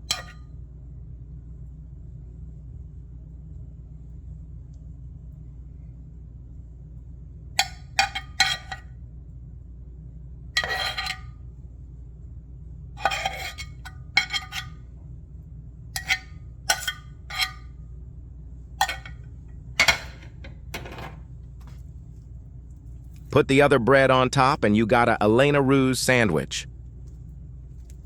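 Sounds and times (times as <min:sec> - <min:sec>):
steady low hum: 0:00.0 - 0:28.0
utensil clinking against tableware: 0:00.1 - 0:00.4, 0:07.6 - 0:08.8, 0:10.6 - 0:11.3, 0:13.0 - 0:14.7, 0:16.0 - 0:17.6, 0:18.8 - 0:21.2.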